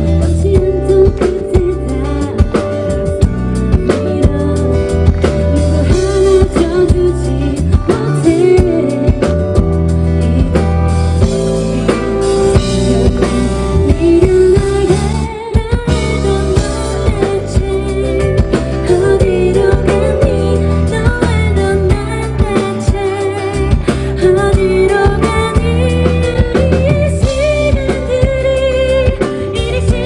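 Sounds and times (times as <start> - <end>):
woman singing pop over loudspeaker: 0.0 - 2.6, 3.8 - 9.4, 12.8 - 30.0
heavy bass beat: 0.0 - 15.2.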